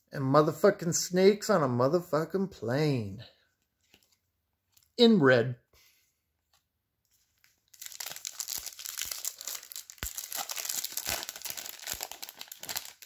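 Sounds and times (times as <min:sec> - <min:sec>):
foil wrapper crinkling and tearing: 0:07.4 - 0:13.0.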